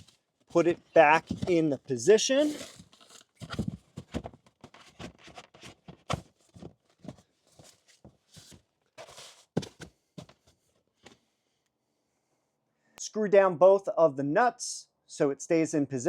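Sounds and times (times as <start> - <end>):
foam tray knocking and scraping: 1.1 - 1.7, 2.5 - 10.5.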